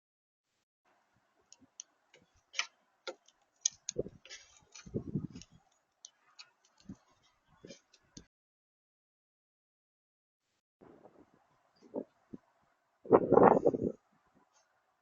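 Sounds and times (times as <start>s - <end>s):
sharp clicks and taps: 1.5s - 7.0s.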